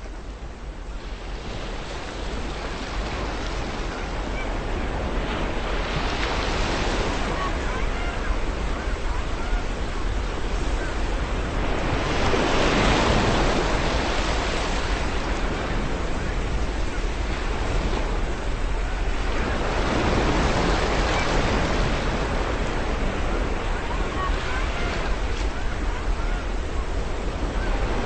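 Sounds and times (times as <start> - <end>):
ocean waves washing in: 0.0 - 28.0
faint seagull cries: 6.6 - 12.0, 23.1 - 28.0.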